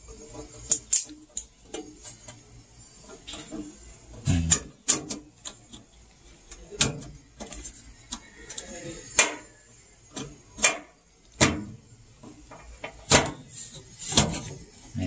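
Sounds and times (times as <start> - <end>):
tools clicking and tapping: 0.7 - 1.9.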